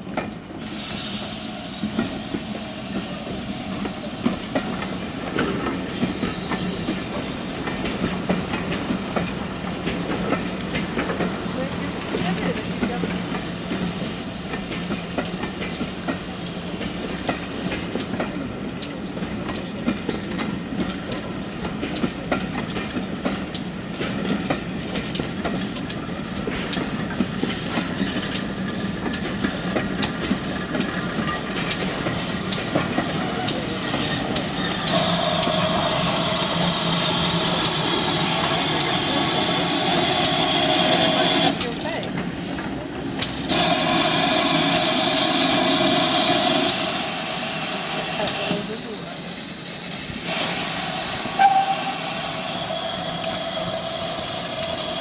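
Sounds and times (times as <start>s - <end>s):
train running: 0.0s - 55.0s
wheels clicking over rail joints: 3.8s - 45.4s.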